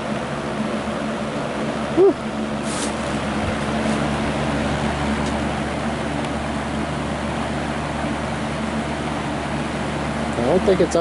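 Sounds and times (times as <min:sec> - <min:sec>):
box fan motor humming: 0:00.0 - 0:11.0
rush of air from fan: 0:00.0 - 0:11.0.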